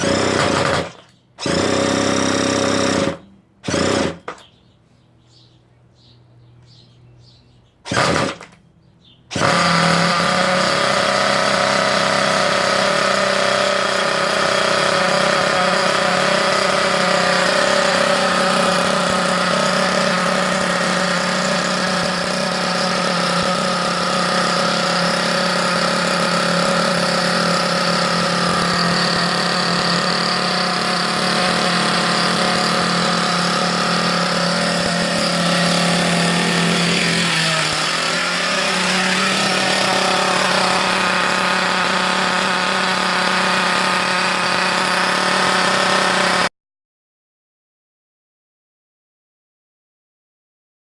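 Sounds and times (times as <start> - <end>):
small two-stroke engine idling: 0.0 - 4.4, 9.3 - 46.5.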